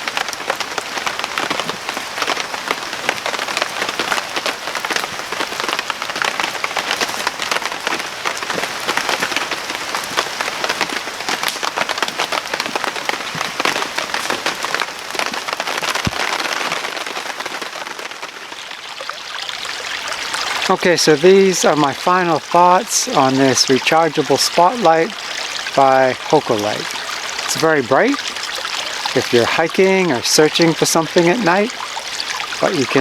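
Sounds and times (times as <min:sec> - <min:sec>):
rain patter: 0:00.0 - 0:33.0.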